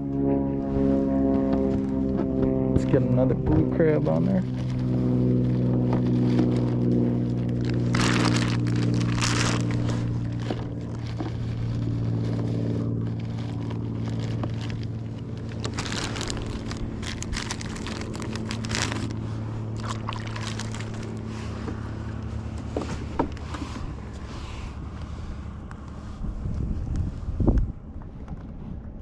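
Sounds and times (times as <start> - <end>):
engine drone: 0.0 - 29.0.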